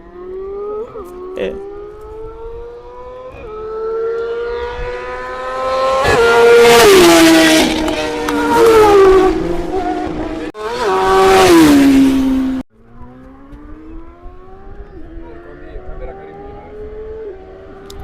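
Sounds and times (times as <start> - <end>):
motorcycle engine accelerating hard: 0.0 - 18.0.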